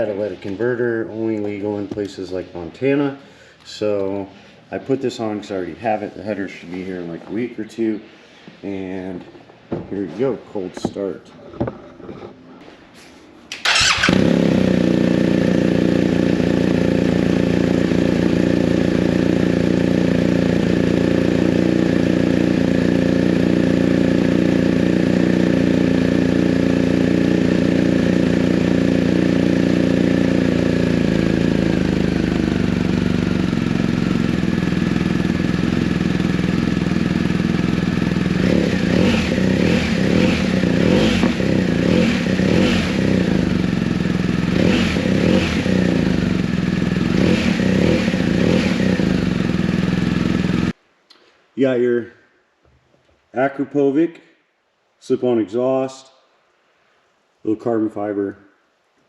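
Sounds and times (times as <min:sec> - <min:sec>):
engine cold start: 0:13.5 - 0:16.0
motorcycle engine idling: 0:13.6 - 0:50.7
throttle blips revving engine: 0:13.7 - 0:50.7.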